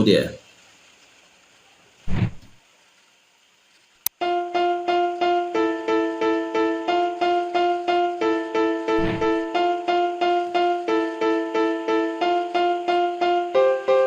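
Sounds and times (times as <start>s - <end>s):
dull thump: 2.1s - 2.6s, 9.0s - 9.5s
electric piano keyboard pattern: 4.1s - 14.0s.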